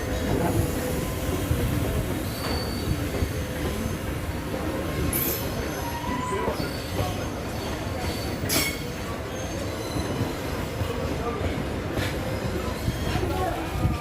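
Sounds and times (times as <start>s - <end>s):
train rumbling on rails: 0.0s - 14.0s
high-pitched wheel squeals: 2.2s - 4.1s, 5.2s - 10.6s.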